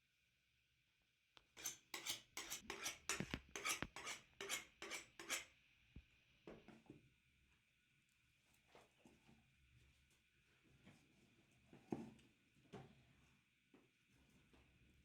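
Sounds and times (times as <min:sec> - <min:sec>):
utensil scraping a dish: 0:01.6 - 0:05.5.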